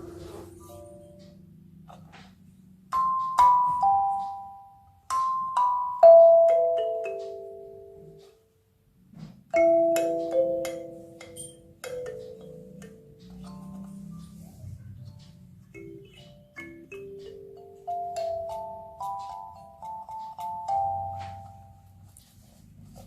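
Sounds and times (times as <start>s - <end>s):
kalimba notes plucked: 2.9s - 8.4s, 9.5s - 22.1s.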